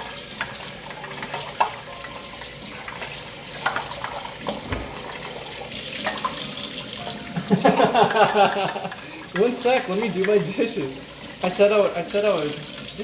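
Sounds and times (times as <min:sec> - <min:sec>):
clinks of bowl and utensils: 0:00.0 - 0:05.2
tap running into sink: 0:00.0 - 0:11.5.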